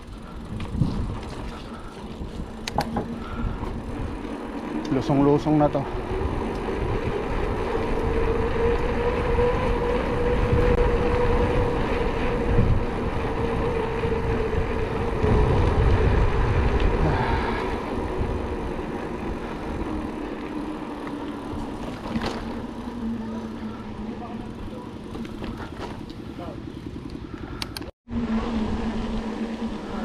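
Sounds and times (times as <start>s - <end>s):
bike tyres on paved road: 0.0s - 30.0s
wind buffeting microphone: 0.0s - 30.0s
steady hum: 28.1s - 30.0s.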